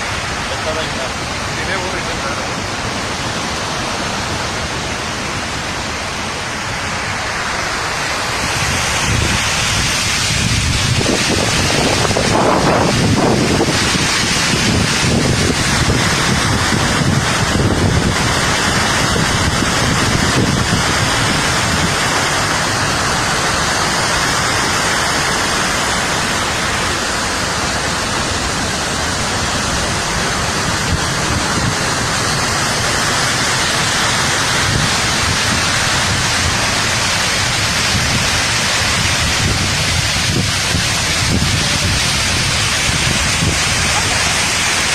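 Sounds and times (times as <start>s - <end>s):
waterfall rushing: 0.0s - 44.9s.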